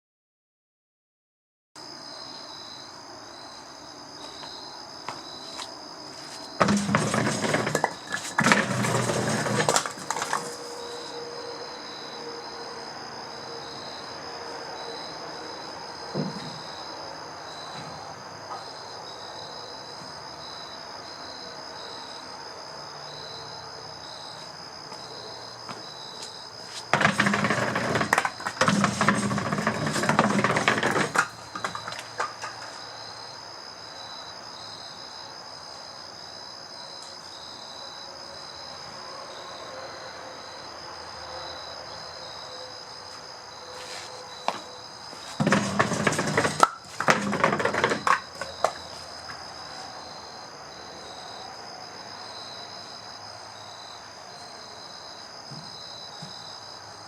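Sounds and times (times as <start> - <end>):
crickets chirping: 1.8 - 57.0
firewood clattering down metal pipe: 6.6 - 10.6, 26.9 - 32.8, 45.4 - 48.8.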